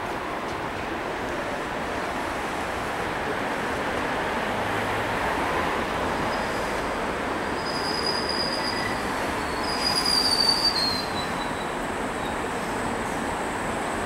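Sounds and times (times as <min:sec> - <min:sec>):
train wheels rumbling on rails: 0:00.0 - 0:14.0
high-pitched brake squeal: 0:06.3 - 0:06.8, 0:07.6 - 0:12.4.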